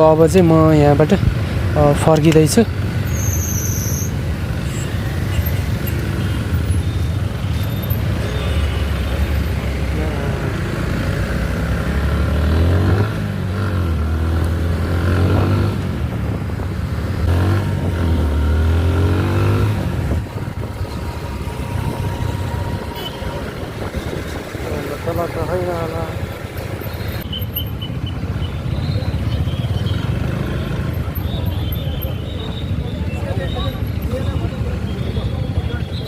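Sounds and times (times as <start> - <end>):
motorcycle engine revving: 4.1 - 27.3, 28.2 - 31.8.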